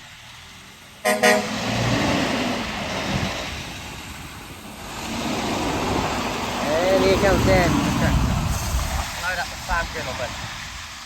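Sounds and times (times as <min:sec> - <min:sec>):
truck engine driving off: 0:00.0 - 0:10.2
truck horn toots: 0:01.0 - 0:01.9.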